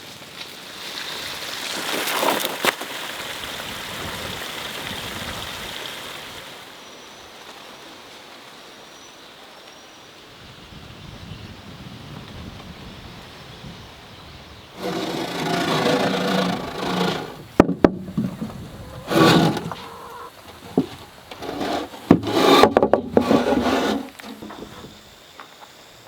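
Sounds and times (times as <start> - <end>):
wood scraping: 14.8 - 25.0.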